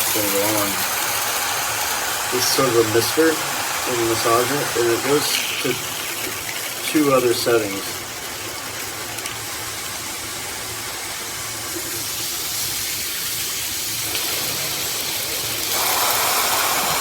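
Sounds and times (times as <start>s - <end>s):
shower head water spray: 0.0s - 8.1s, 11.7s - 17.0s.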